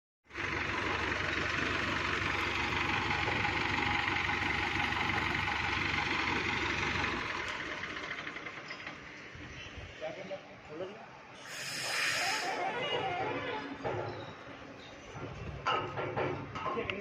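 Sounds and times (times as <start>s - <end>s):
electric arc welding hiss: 11.4s - 12.5s.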